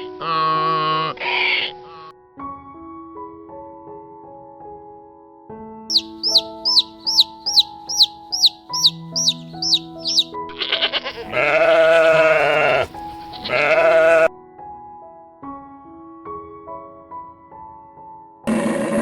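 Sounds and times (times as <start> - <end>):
sheep bleating: 0.1 - 2.1, 10.1 - 14.3
gentle piano music: 1.8 - 18.5
bird chirping: 5.9 - 10.3.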